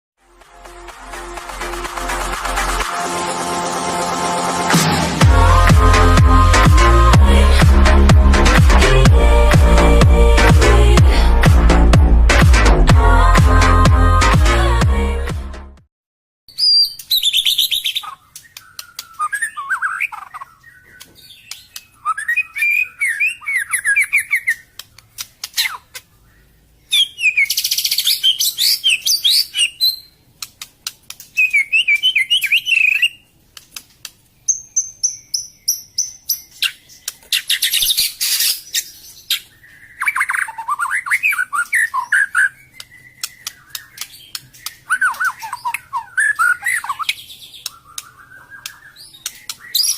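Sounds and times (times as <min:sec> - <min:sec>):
bird singing trills: 0:16.5 - 0:24.7, 0:25.6 - 0:30.2, 0:31.4 - 0:33.3, 0:34.4 - 0:49.9
bird sharp clicking notes: 0:18.3 - 0:19.9, 0:42.7 - 0:49.9.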